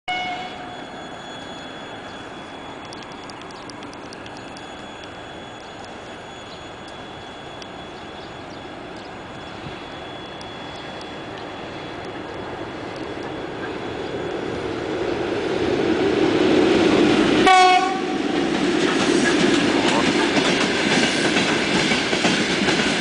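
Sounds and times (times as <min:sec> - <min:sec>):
thin high steady tone: 0:00.1 - 0:16.1
train rumbling: 0:00.1 - 0:23.0
faint ticks: 0:02.8 - 0:05.2.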